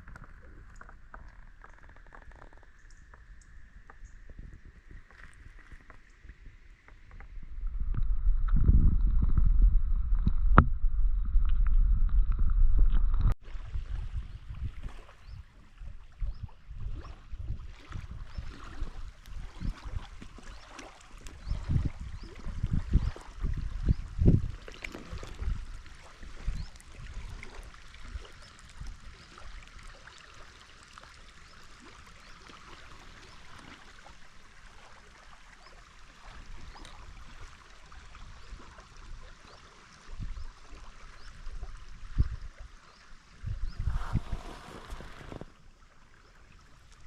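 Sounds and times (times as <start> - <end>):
river water rippling: 0.0 - 47.0
wind buffeting microphone: 4.0 - 29.2, 41.3 - 45.6.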